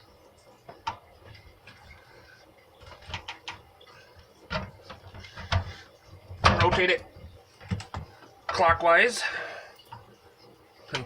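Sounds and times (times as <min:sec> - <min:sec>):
garbage disposal clicks and knocks: 0:06.4 - 0:07.0.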